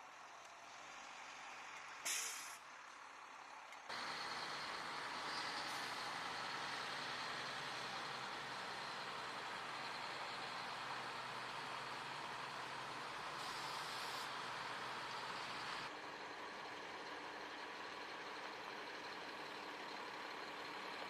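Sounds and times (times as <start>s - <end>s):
heavy vehicle noise: 0.7s - 21.0s
sharp air hiss: 2.0s - 2.6s.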